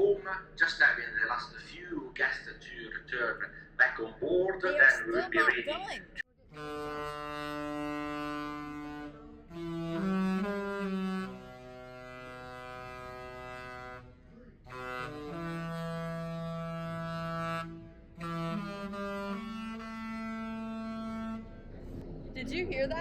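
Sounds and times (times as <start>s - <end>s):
ship's horn playing chords: 6.5s - 22.0s.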